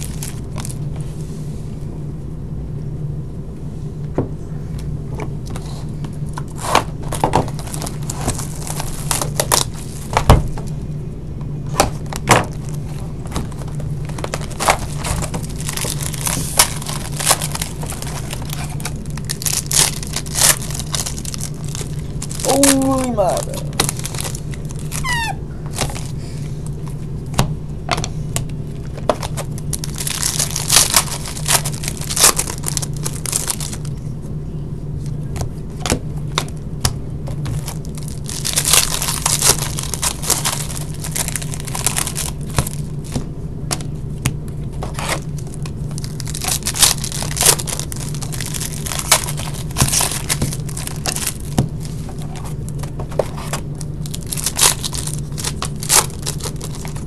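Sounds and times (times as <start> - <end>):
wrappers crinkling: 0.0 - 0.8, 6.2 - 10.7, 11.7 - 27.0, 28.7 - 34.1, 37.4 - 43.9, 44.7 - 57.0
steady low hum: 0.0 - 57.0
foil packs tearing: 6.4 - 10.6, 12.0 - 26.1, 28.9 - 33.9, 37.5 - 43.9, 44.8 - 57.0.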